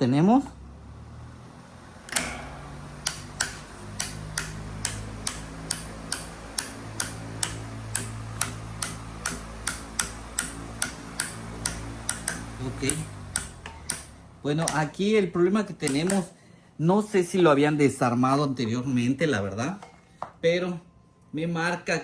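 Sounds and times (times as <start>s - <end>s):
electric fan motor humming: 0.0s - 18.2s
sharp metal knocking: 2.1s - 15.0s, 15.8s - 16.3s.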